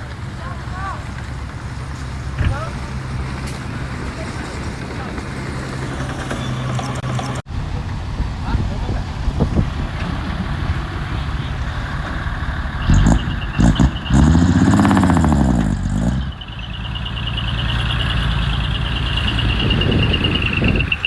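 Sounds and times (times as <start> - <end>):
diesel machinery engine running: 0.0 - 21.0
engine knocks: 1.0 - 8.0
high-pitched pulsing squeal: 5.6 - 7.4, 12.8 - 21.0.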